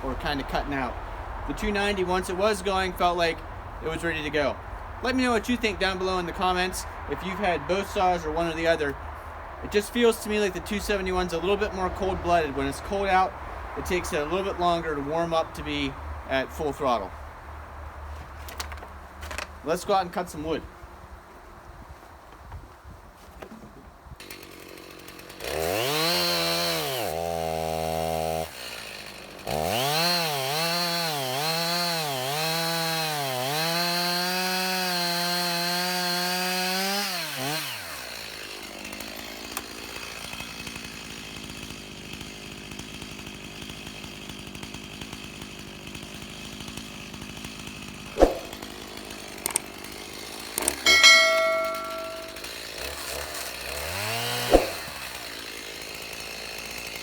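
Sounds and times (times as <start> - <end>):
chainsaw revving: 24.2 - 57.0
short ringing clank: 50.8 - 52.5
sharp knock: 50.9 - 52.4.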